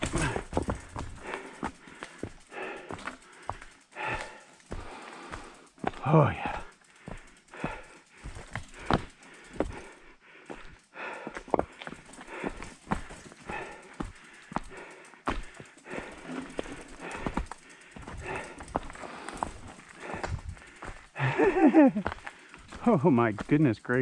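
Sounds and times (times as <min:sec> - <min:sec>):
footsteps on loose rock: 0:00.0 - 0:09.9, 0:10.5 - 0:23.7
bike and rocks clattering: 0:00.0 - 0:24.0.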